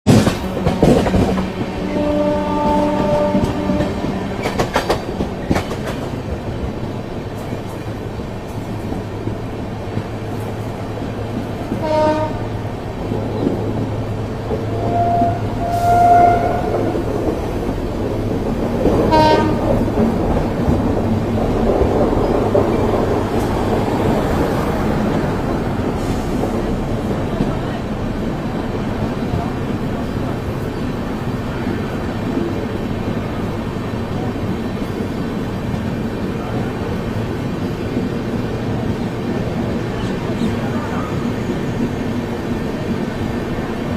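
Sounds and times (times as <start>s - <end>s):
train wheels clacking on rails: 0.1s - 43.9s
train horn: 1.8s - 4.2s, 11.7s - 12.6s, 14.7s - 17.1s, 19.1s - 19.8s.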